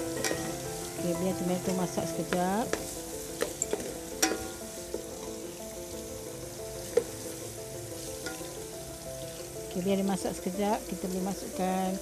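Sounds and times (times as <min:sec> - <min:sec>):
food sizzling in hot oil: 0:00.0 - 0:12.0
wooden spatula knocking pot: 0:01.6 - 0:05.1.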